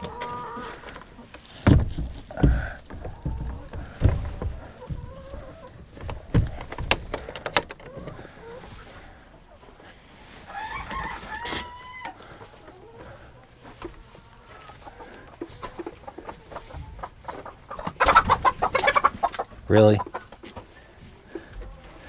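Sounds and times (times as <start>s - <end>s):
hens clucking: 0.0s - 22.0s
sharp clicks and knocks: 6.0s - 8.2s
rooster crowing: 10.5s - 12.4s.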